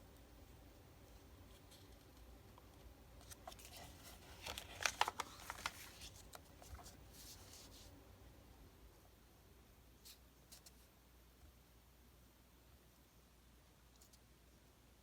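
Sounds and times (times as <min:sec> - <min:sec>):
paper pieces clicking and rustling: 0:03.2 - 0:06.9.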